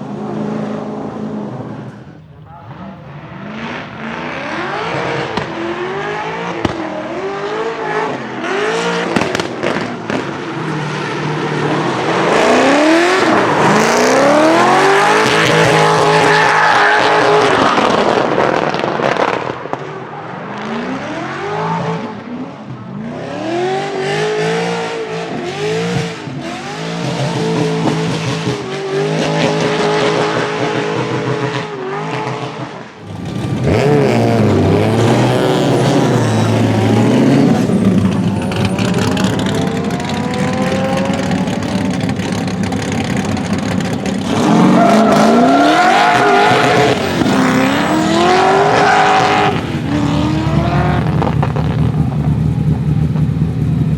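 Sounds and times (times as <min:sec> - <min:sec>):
car engine revving: 0:00.0 - 0:53.9
exhaust pops: 0:05.2 - 0:05.6, 0:09.1 - 0:10.4, 0:33.1 - 0:48.1, 0:48.7 - 0:53.9
tyre squeal: 0:34.2 - 0:51.8.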